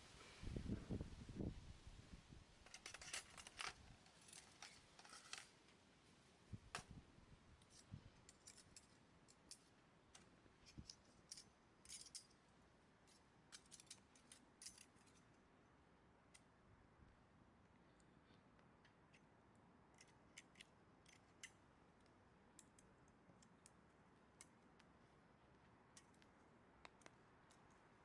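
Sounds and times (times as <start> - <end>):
faint small clicks and ticks: 16.3 - 16.5, 17.7 - 28.0.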